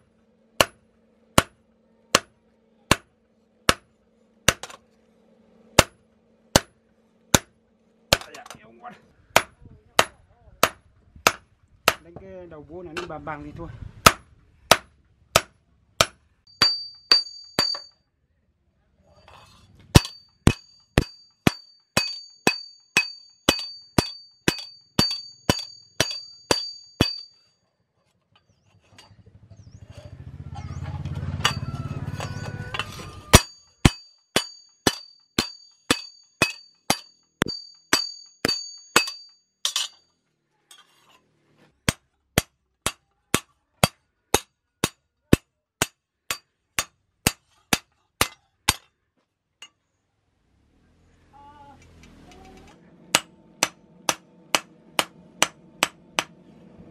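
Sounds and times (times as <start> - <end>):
hammer ringing on anvil: 16.5 - 18.0, 20.0 - 27.4, 31.4 - 40.0
low rumble: 52.0 - 56.9.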